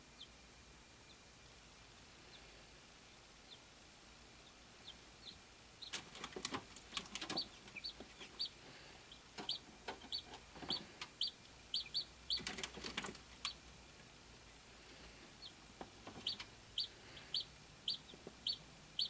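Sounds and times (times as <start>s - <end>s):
chick peeping: 3.2s - 3.7s, 4.4s - 19.0s
scratchy clicks and rustles: 5.9s - 8.3s, 12.4s - 13.6s.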